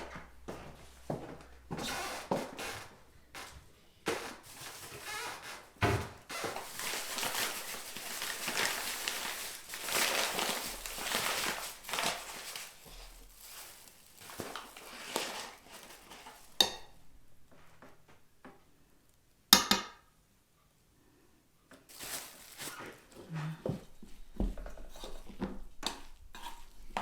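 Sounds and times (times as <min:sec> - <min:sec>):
scraping and rustling: 0:04.1 - 0:16.6, 0:21.9 - 0:27.0.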